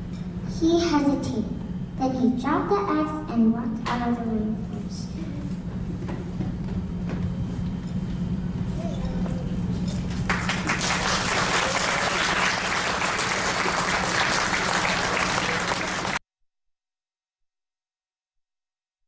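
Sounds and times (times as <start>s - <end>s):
audience applauding: 10.1s - 16.2s.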